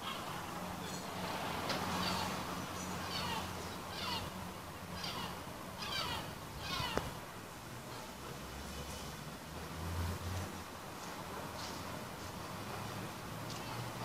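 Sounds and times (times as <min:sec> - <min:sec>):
bird calling: 0:01.9 - 0:07.1.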